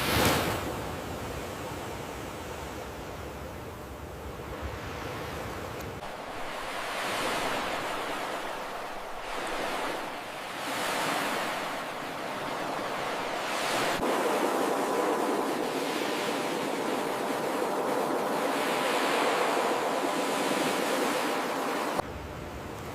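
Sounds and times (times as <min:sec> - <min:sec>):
ocean waves breaking on beach: 0:00.0 - 0:22.9.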